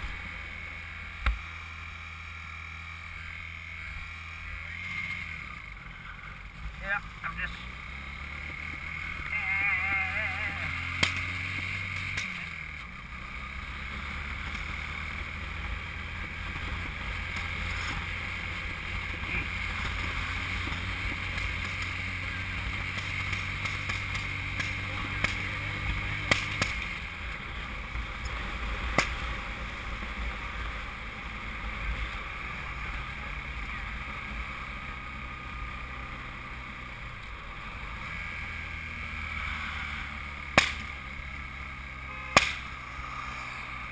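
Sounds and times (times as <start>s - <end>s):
motorcycle engine running: 0.0s - 43.9s
backfire pops: 26.2s - 26.9s, 28.9s - 29.3s, 40.5s - 40.9s, 42.3s - 42.8s.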